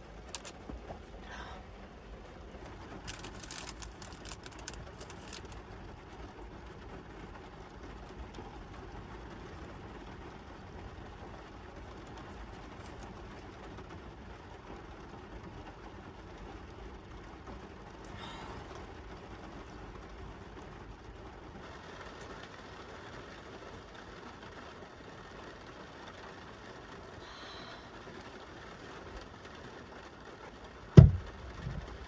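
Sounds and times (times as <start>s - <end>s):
rain on a car roof: 0.0s - 32.0s
raindrop taps: 31.0s - 32.0s.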